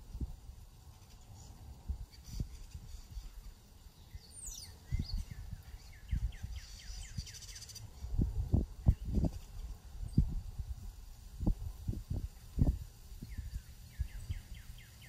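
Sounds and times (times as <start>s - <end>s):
wild birds singing: 0.0s - 15.0s.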